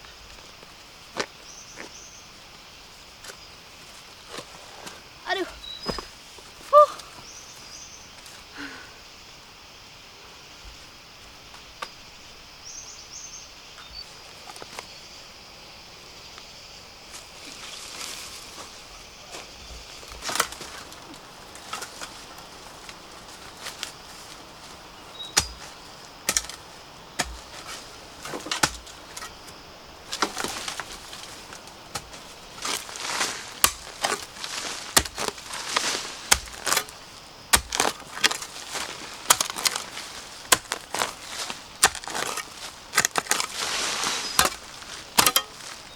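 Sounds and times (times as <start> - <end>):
dry vegetation rustling: 0.0 - 8.4, 17.0 - 45.9.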